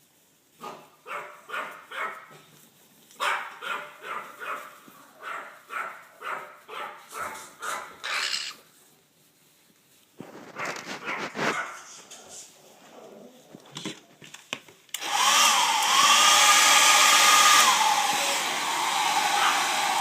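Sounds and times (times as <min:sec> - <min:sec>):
parrot bark-like calls: 0:05.3 - 0:08.6.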